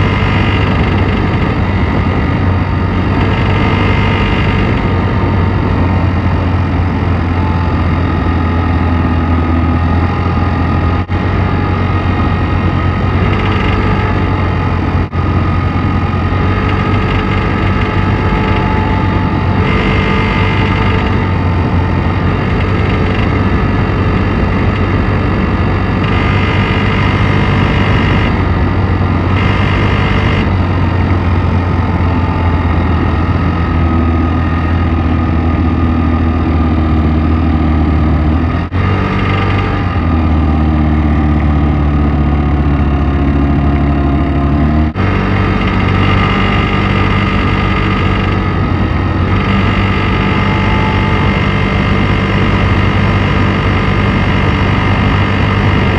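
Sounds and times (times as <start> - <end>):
scooter engine idling: 0.0 - 36.6.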